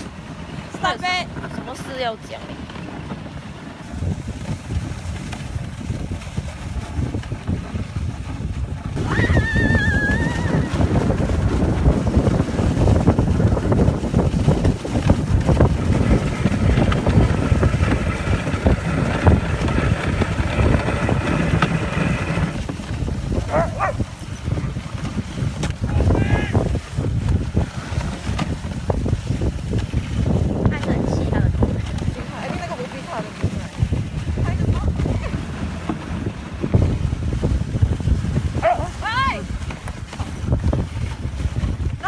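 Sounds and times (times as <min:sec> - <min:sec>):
sled runners scraping on snow: 0:00.0 - 0:42.0
wind on microphone: 0:00.0 - 0:42.0
wavering high cry: 0:09.0 - 0:10.7.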